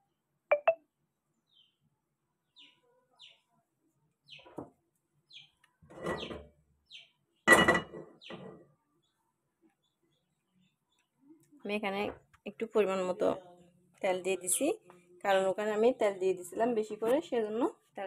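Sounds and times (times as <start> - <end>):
small bird chirping: 2.4 - 3.5, 5.3 - 7.2.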